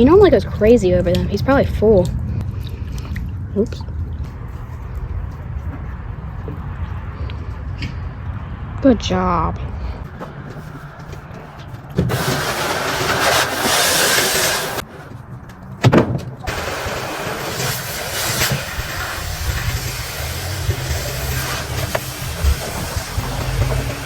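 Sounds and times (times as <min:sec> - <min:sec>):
low rumble: 0:00.0 - 0:10.1
motor vehicle running: 0:00.0 - 0:24.0
steady hiss: 0:16.5 - 0:24.0.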